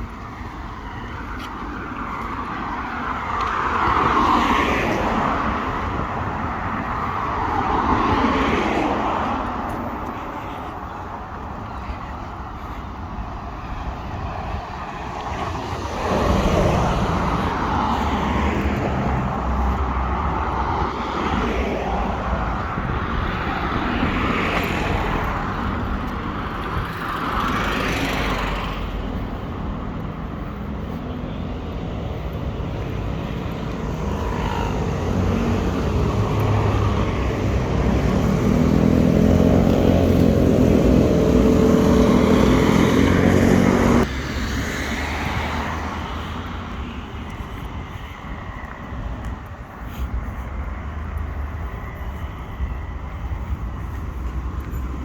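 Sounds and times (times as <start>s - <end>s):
vehicles passing: 0.0s - 55.0s
engine humming close by: 34.0s - 44.3s.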